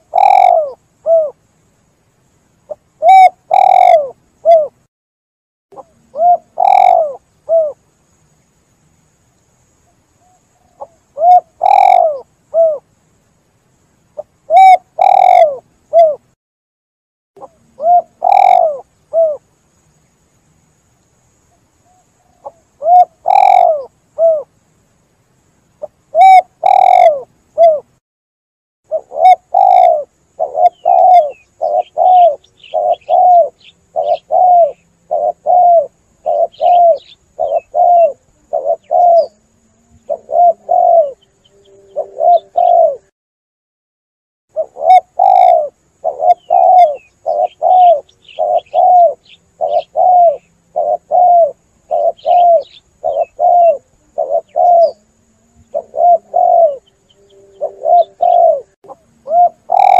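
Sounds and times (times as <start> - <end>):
dove cooing: 0.0 - 1.4, 2.7 - 4.8, 5.8 - 7.8, 10.2 - 12.8, 14.2 - 16.3, 17.4 - 19.4, 21.9 - 24.5, 25.8 - 27.9, 28.9 - 43.1, 44.5 - 59.9
faint bird chirps: 0.0 - 4.9, 5.8 - 16.4, 17.4 - 28.0, 28.9 - 43.1, 44.5 - 59.9.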